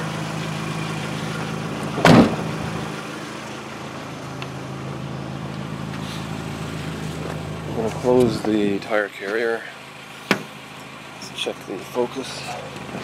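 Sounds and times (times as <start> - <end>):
car engine idling: 0.0 - 13.0
car door slamming: 1.8 - 2.8, 10.2 - 10.6.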